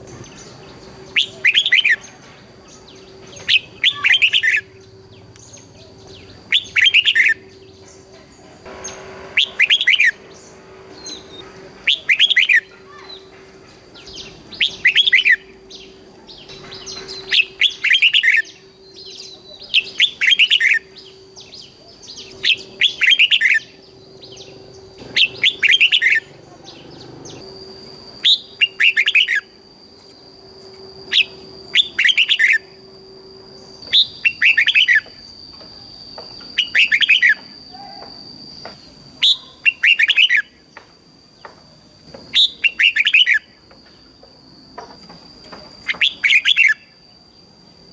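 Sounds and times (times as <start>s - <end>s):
faint steady hum: 0.0s - 47.9s
bird singing whistled phrases: 0.1s - 8.0s, 8.8s - 13.3s, 14.0s - 29.5s, 31.1s - 32.8s, 33.8s - 35.1s, 36.5s - 38.1s, 39.2s - 40.6s, 42.3s - 43.6s, 45.8s - 47.0s.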